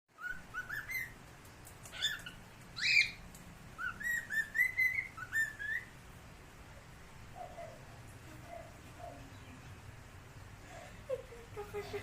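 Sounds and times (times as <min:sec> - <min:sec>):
cockatiel chirps: 0:00.2 - 0:01.2, 0:01.8 - 0:03.2, 0:03.8 - 0:05.9
cockatiel whistling: 0:00.2 - 0:01.2, 0:03.8 - 0:05.9.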